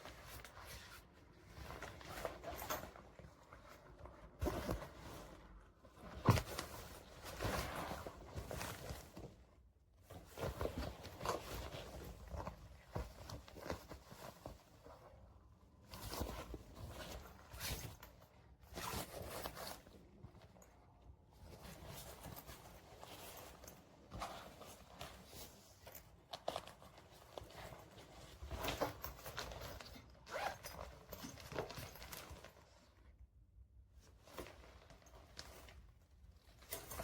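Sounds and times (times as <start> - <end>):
bag handling: 0.2 - 9.4, 21.4 - 32.7
backpack zip opening and closing: 30.2 - 30.8.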